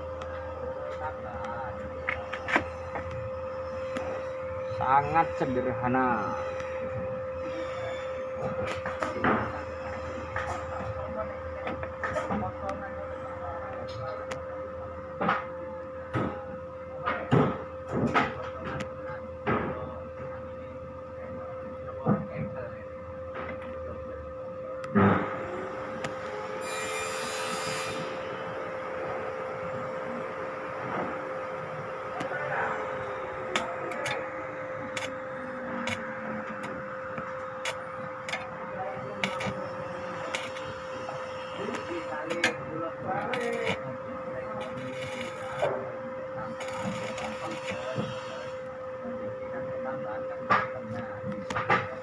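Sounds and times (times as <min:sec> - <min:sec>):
shredding machine humming: 0:22.9 - 0:52.0.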